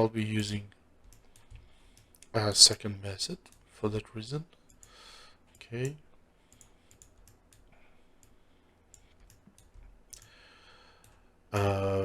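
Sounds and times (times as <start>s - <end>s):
computer mouse clicks: 1.0s - 2.4s, 4.7s - 10.3s.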